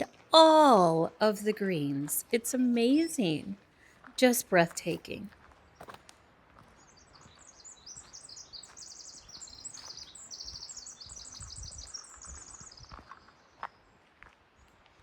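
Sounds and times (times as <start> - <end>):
songbird singing trills: 6.8 - 13.8.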